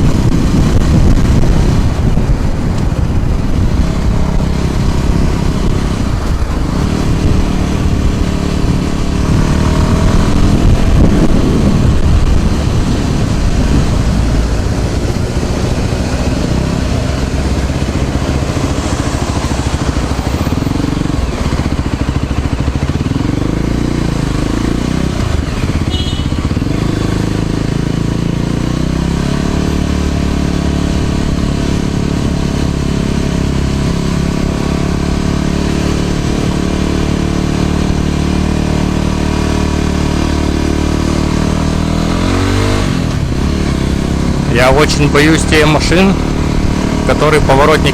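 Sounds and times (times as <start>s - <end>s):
steady rushing noise: 0.0s - 28.1s
passing vehicles: 0.0s - 47.9s
scooter engine: 0.0s - 47.9s.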